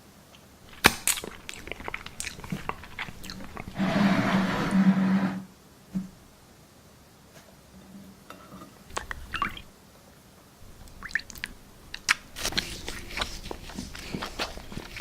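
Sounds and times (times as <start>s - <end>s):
foam crackling and crunching: 0.7s - 3.7s.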